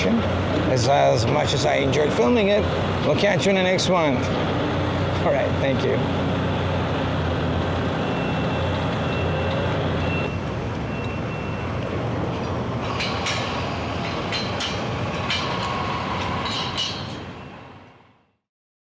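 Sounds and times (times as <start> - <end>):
diesel engines rumbling: 0.0 - 18.2
high beeping: 8.0 - 13.0
sharp knocks and clanks: 8.8 - 17.3.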